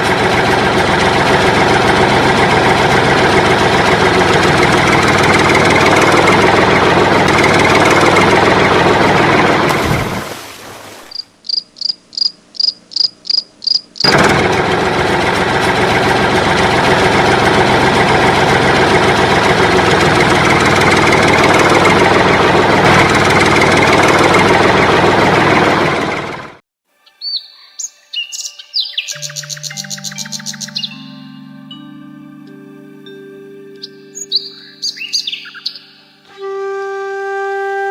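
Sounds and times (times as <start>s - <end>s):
toy vehicle engine: 0.0s - 9.9s, 14.0s - 26.6s
noisy engine running: 0.0s - 10.5s, 14.0s - 26.6s.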